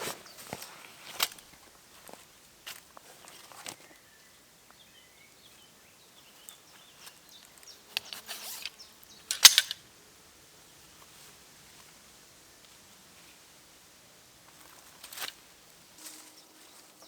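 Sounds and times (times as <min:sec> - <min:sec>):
faint chirping: 0:03.1 - 0:09.7.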